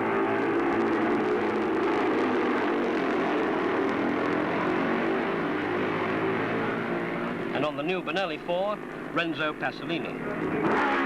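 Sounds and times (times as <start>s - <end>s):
racing motorcycle engines at high revs: 0.0s - 7.6s, 10.1s - 11.0s.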